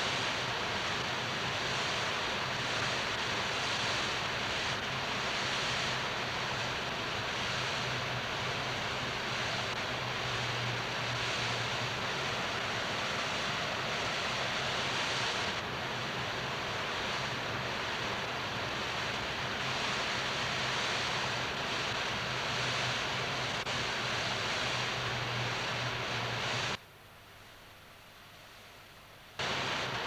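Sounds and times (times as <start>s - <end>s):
steady rushing noise: 0.1s - 15.7s.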